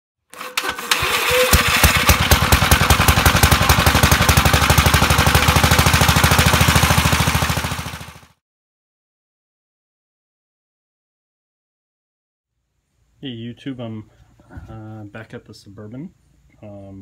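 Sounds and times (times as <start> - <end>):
small single-cylinder engine running: 0.4 - 8.4.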